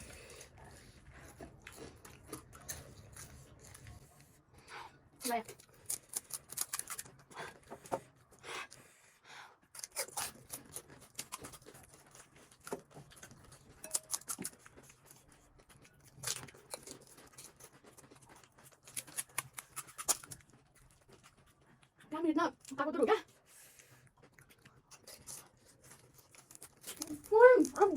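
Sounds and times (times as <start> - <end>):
crisp shells crunching when chewed: 0.1 - 4.2, 5.4 - 7.7, 9.6 - 22.8, 23.4 - 27.9.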